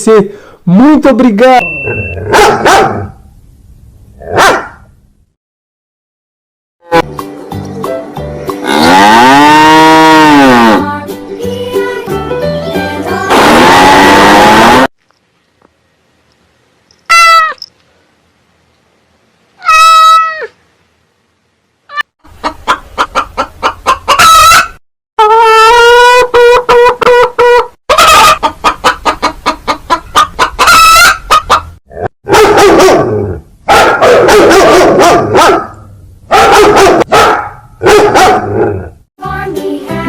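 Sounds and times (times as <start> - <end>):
hens clucking: 21.9 - 24.6, 25.7 - 31.7
rooster crowing: 24.1 - 26.3.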